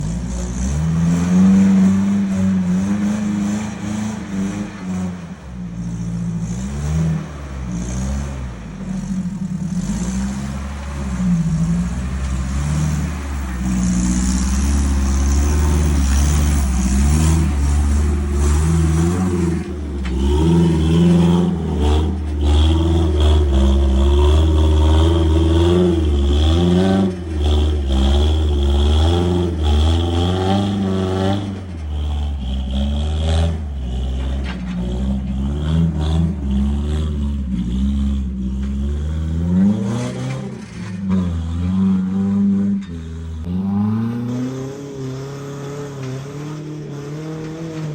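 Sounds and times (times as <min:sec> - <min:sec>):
truck engine revving: 0:00.0 - 0:47.9.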